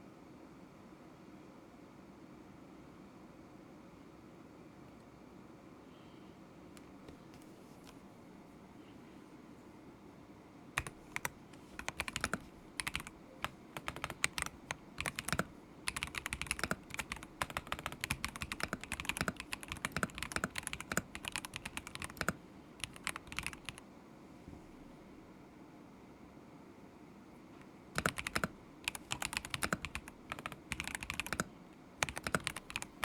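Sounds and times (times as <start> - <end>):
typing on mechanical keyboard: 10.8 - 23.8, 28.0 - 33.0.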